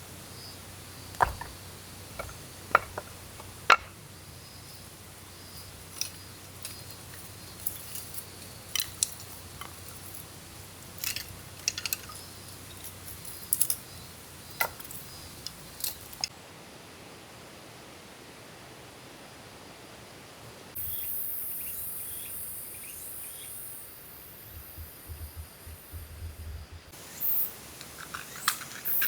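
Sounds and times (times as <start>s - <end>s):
soft background hiss: 0.0s - 29.0s
small hard objects clicking: 1.1s - 4.0s, 6.0s - 10.3s, 10.9s - 13.8s.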